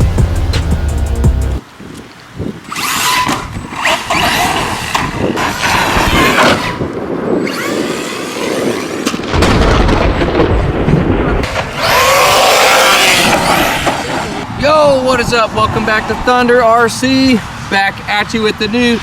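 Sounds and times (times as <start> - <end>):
electric motor whining: 2.7 - 9.2, 11.7 - 14.4
gritty rushing noise: 2.7 - 19.0.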